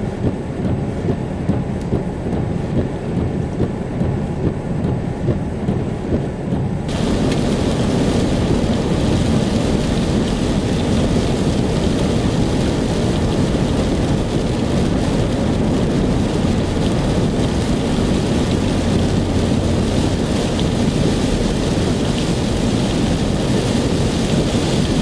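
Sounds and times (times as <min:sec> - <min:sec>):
low continuous rumble: 0:00.0 - 0:25.0
heavy rain hissing: 0:06.9 - 0:25.0.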